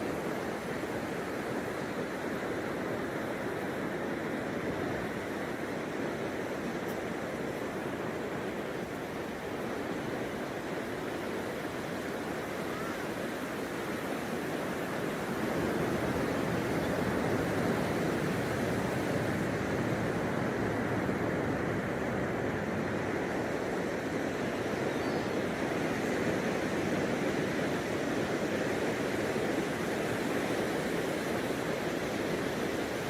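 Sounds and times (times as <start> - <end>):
ocean waves breaking on beach: 0.0 - 33.0.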